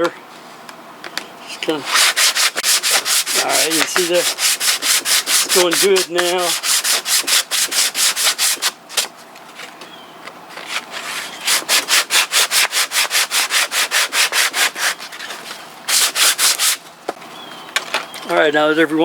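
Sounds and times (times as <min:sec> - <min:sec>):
sandpaper rasping in wood: 0:01.8 - 0:09.0, 0:10.7 - 0:16.8.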